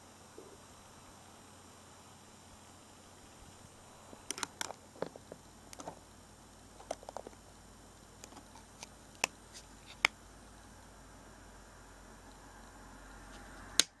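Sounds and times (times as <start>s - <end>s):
faint steady hiss: 0.0s - 14.0s
small hard objects clicking: 4.2s - 6.0s, 6.8s - 7.4s.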